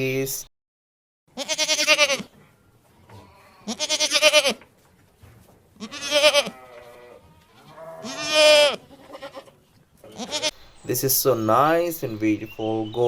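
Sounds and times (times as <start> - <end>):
goat bleating: 1.3 - 2.3, 3.0 - 4.6, 5.8 - 13.0.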